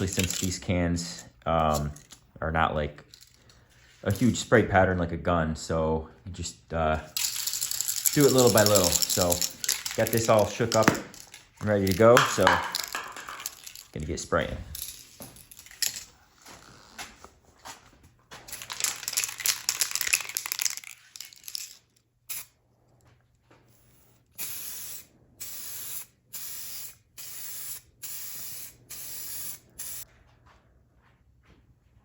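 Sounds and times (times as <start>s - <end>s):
spray paint can hissing: 0.0s - 0.6s, 7.1s - 13.8s, 22.3s - 22.5s, 23.7s - 30.0s.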